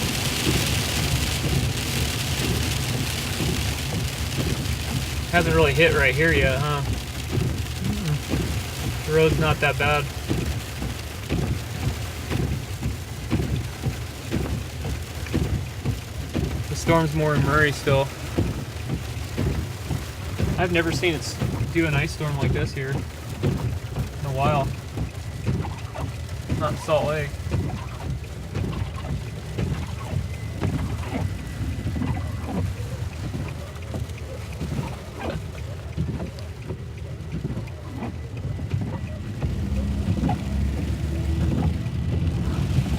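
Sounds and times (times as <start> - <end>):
car rumbling on road: 0.0 - 42.9
freezing rain ticking on car: 0.0 - 42.9.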